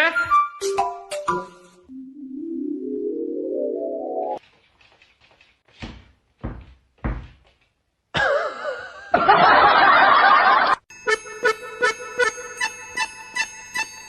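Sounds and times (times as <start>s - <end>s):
dull thumps: 5.7s - 7.8s.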